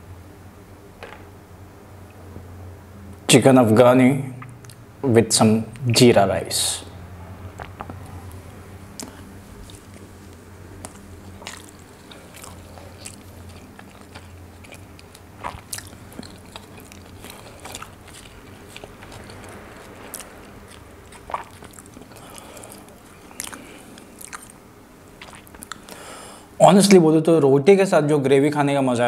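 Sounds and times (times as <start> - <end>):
low steady hum: 0.0 - 29.0
chewing and mouth sounds: 4.4 - 4.9, 7.5 - 26.1.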